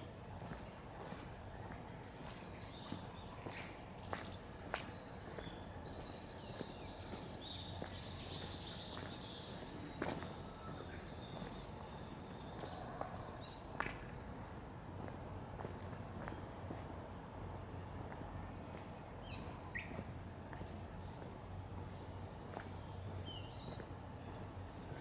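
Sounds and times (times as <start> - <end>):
faint footsteps: 0.3 - 18.4
small birds chirping: 0.4 - 14.4.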